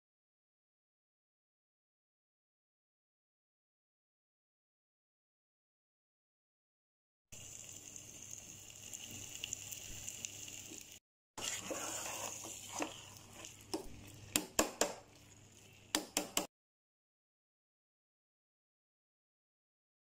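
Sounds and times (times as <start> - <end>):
food sizzling in a pot: 7.4 - 16.5
ladle scraping a metal pot: 11.4 - 14.2.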